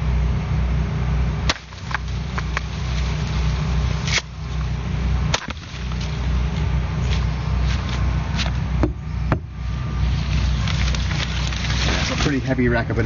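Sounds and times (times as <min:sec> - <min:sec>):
steady low rumble: 0:00.0 - 0:13.0
blade chopping through stalk: 0:01.5 - 0:04.7, 0:05.3 - 0:08.6.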